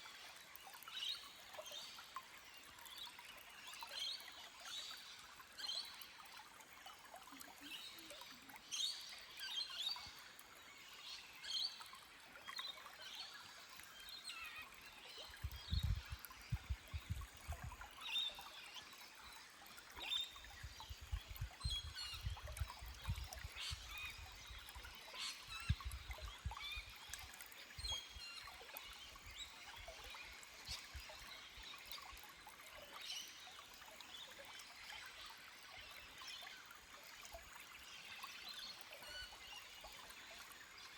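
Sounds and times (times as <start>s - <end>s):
stream trickling over rocks: 0.0s - 40.9s.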